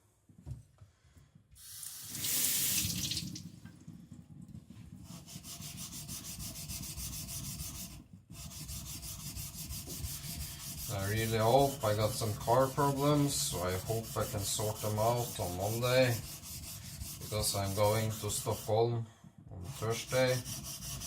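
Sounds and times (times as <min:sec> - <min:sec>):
water hissing on whetstone: 0:01.6 - 0:03.4
blade rubbing on whetstone: 0:05.2 - 0:18.8, 0:19.7 - 0:21.0.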